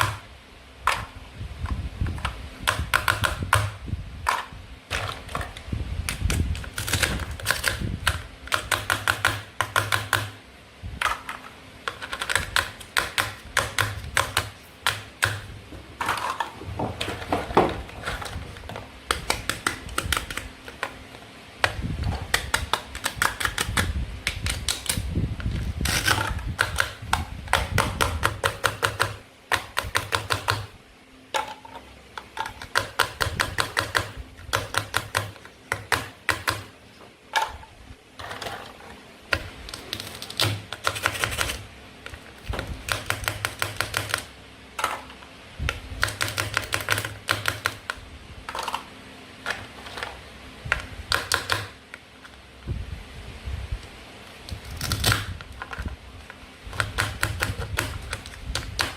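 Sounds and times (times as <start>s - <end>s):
plastic toy food clicking: 22.3s - 25.0s.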